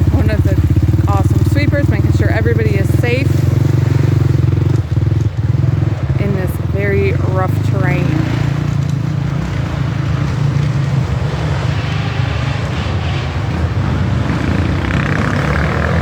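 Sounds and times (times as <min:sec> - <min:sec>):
dirt bike engines droning: 0:00.0 - 0:16.0.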